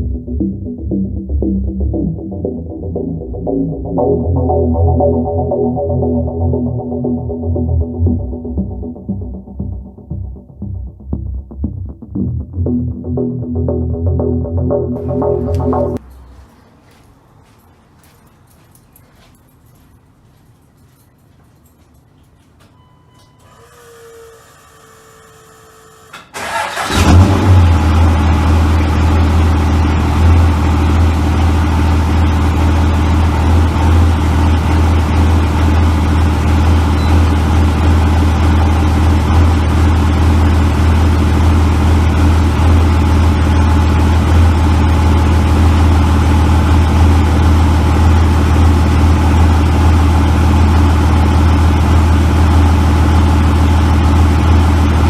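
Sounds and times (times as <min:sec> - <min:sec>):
diesel engine cranking and idling: 0:26.3 - 0:55.0.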